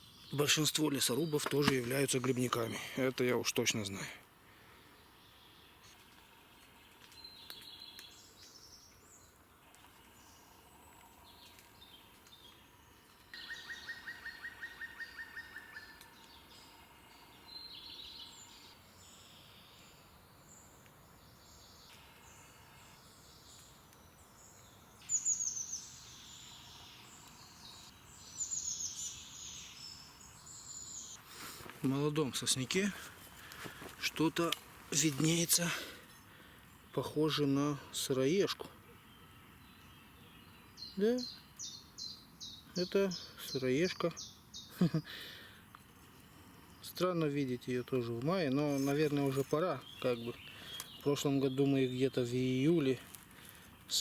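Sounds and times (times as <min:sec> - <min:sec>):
birds singing: 0:00.0 - 0:54.0
bird trill: 0:13.3 - 0:20.0, 0:24.4 - 0:31.5.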